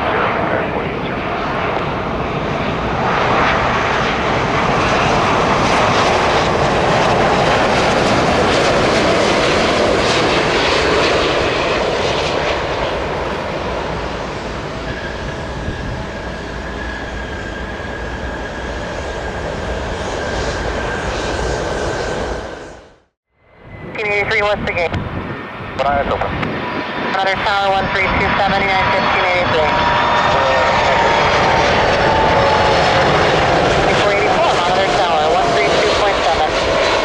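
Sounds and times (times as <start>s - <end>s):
jet engines rushing: 0.0s - 37.0s
steady engine whine: 0.0s - 37.0s.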